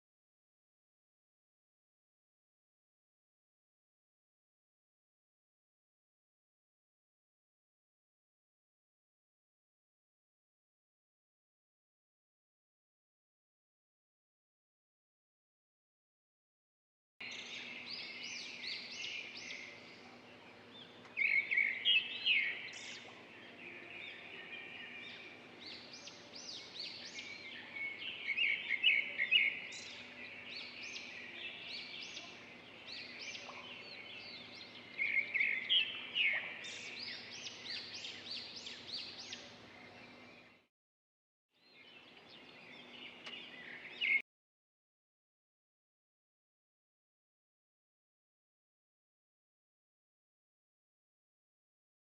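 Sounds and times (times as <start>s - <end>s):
small birds chirping: 17.2s - 40.7s, 41.6s - 44.2s.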